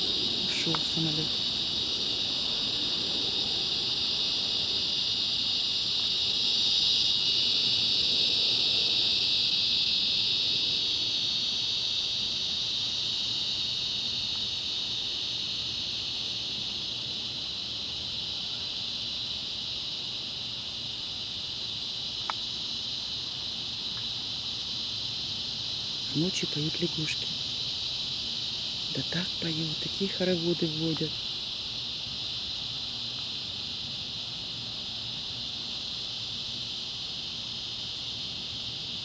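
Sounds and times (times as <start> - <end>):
distant airplane rumble: 0.0 - 11.4
cicadas buzzing: 0.0 - 39.0.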